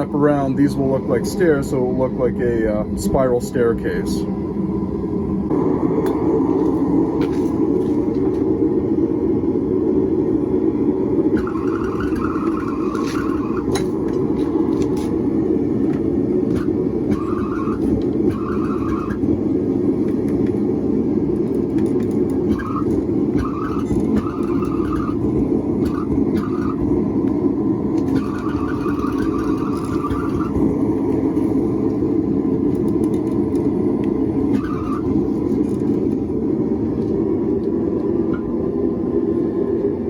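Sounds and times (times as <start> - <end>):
forge roaring: 3.8 - 32.6
high squeals: 11.4 - 13.8, 22.5 - 26.8, 28.1 - 30.6.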